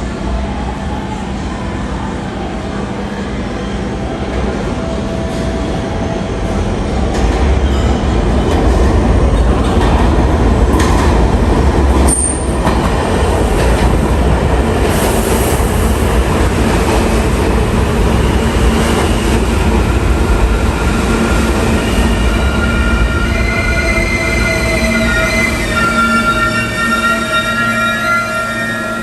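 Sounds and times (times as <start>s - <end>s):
subway train wheels rumbling: 0.0s - 29.0s
high wheel squeal: 21.0s - 29.0s.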